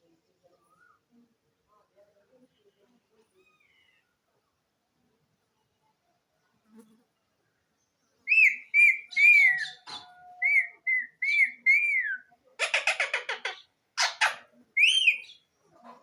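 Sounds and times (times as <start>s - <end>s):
parakeet whistling and chattering: 8.3s - 15.4s.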